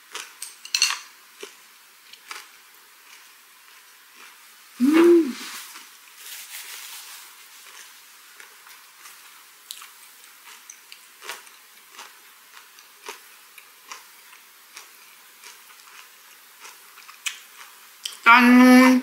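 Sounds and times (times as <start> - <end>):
soft wet chewing with crunches: 0.0 - 0.4, 1.3 - 4.6, 7.4 - 18.2.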